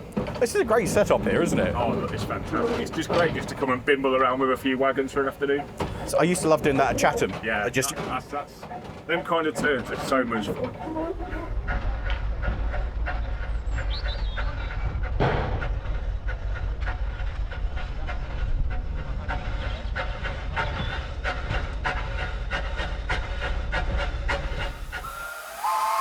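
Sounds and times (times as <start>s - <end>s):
wheels clicking on rails: 0.0s - 13.5s
steam locomotive rumble: 0.0s - 26.0s.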